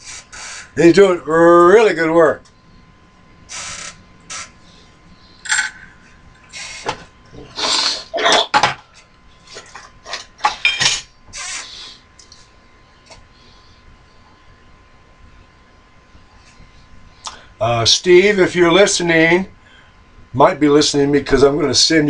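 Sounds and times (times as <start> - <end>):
faint steady tone: 1.4 - 6.8.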